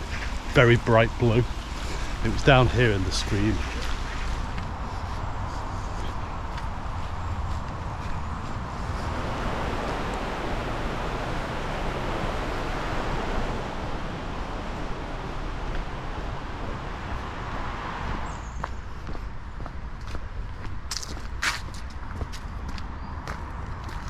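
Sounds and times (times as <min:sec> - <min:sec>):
stream water rushing: 0:00.0 - 0:04.6, 0:08.8 - 0:18.3.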